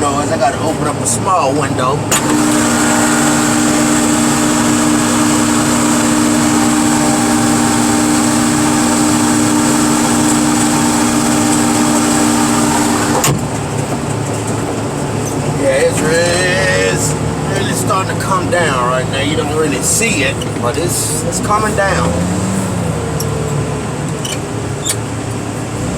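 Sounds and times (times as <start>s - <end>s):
car crusher engine and hydraulic pump: 0.0s - 25.9s.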